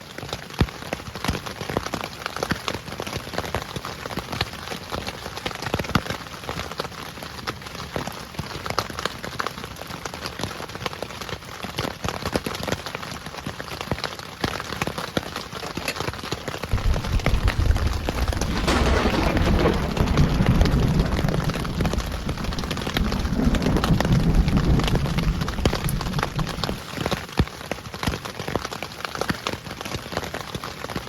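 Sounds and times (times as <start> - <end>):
heavy rain falling: 16.5 - 27.6.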